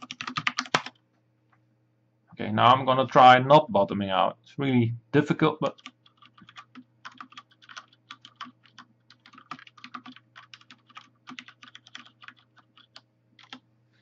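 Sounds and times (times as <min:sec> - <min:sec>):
mechanical keyboard typing: 0:00.0 - 0:01.0, 0:05.7 - 0:13.6.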